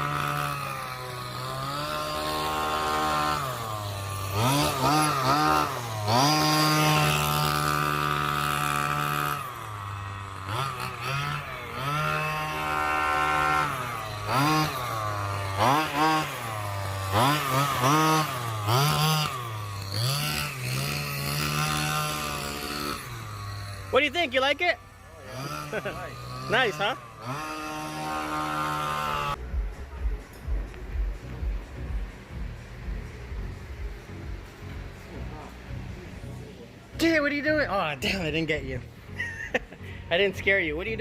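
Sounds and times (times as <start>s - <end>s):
two-stroke rc car engine revving: 0.0s - 41.0s.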